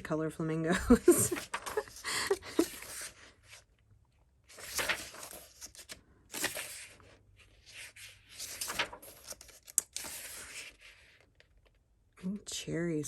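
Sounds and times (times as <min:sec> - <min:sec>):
book pages turning: 0:01.1 - 0:03.7, 0:04.5 - 0:11.8.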